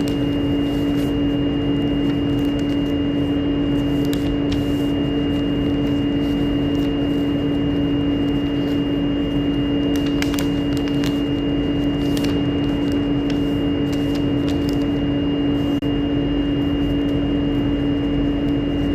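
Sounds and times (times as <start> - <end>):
steady machine hum: 0.0 - 18.9.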